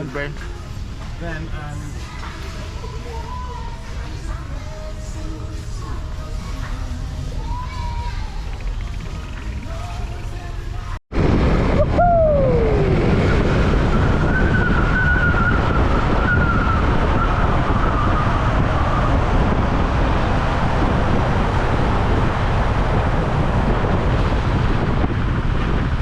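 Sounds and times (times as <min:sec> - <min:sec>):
wind buffeting microphone: 0:11.1 - 0:26.0
falling pitched whine: 0:11.2 - 0:22.8.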